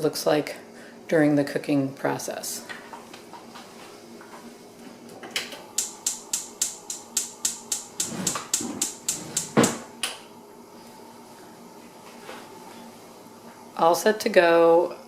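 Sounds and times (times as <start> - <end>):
gas stove igniter clicking: 5.4 - 10.2.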